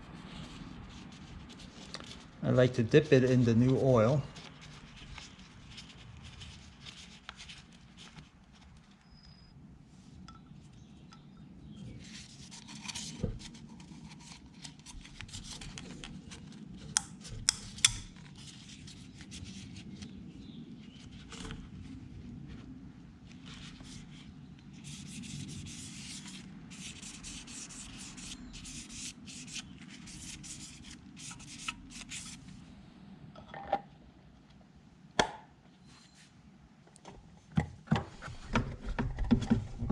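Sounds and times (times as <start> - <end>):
hands rubbing and scraping: 24.8 - 32.5.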